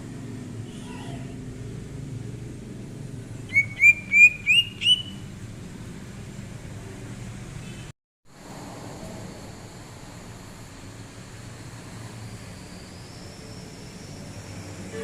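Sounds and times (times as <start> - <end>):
bird singing rising notes: 3.4 - 5.3.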